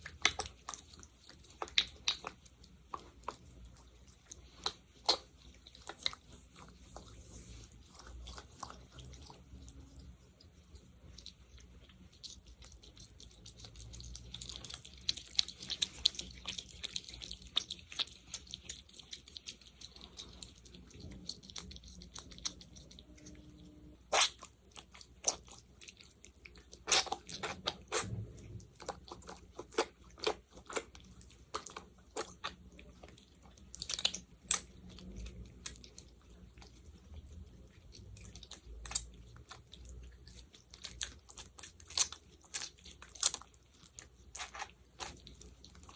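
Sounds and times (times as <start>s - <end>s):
sticky gel squishing and popping: 0.0s - 9.8s, 37.9s - 45.9s.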